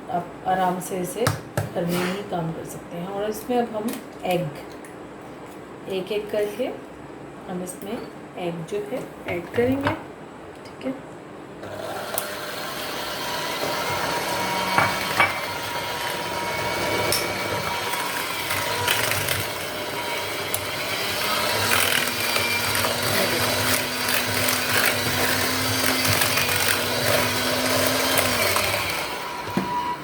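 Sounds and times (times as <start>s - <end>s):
electric hand mixer whirring: 11.6s - 30.0s
mixer clicks: 16.8s - 29.6s.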